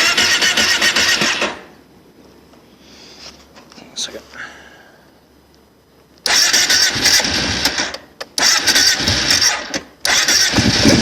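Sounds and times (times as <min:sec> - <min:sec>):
engine cranking and starting: 0:00.0 - 0:01.7, 0:06.2 - 0:11.0.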